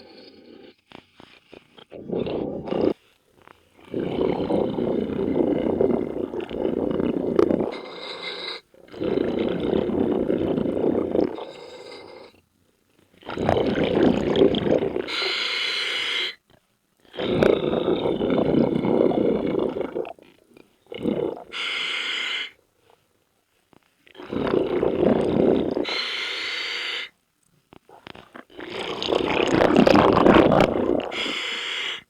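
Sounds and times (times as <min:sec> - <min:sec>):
bubbling exhalations: 0:01.5 - 0:03.0, 0:03.8 - 0:12.3, 0:13.2 - 0:15.4, 0:17.1 - 0:22.6, 0:24.1 - 0:26.6, 0:27.8 - 0:31.6
hissing regulator inhalation: 0:03.8 - 0:12.4, 0:20.9 - 0:22.6, 0:24.2 - 0:27.1, 0:28.0 - 0:32.0.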